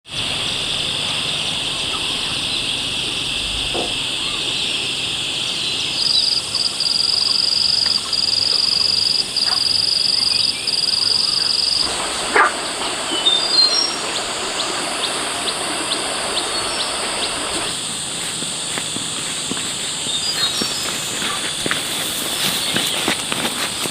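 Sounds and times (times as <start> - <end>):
high insect drone: 0.0 - 23.9
higher insect buzz: 0.1 - 23.9
sharp knock: 3.7 - 4.0
bird calling falling notes: 10.0 - 17.8.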